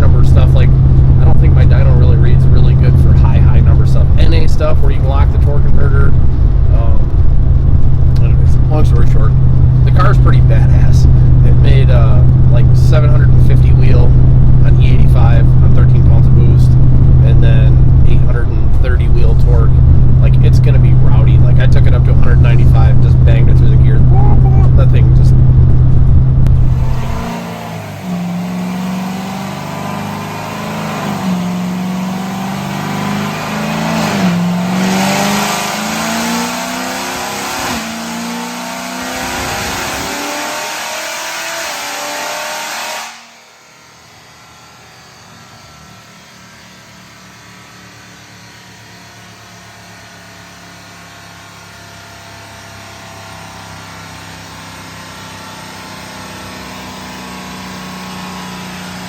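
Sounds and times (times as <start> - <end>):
quiet steady engine drone: 0.0 - 39.3, 43.4 - 59.0
car engine running hard: 0.0 - 59.0.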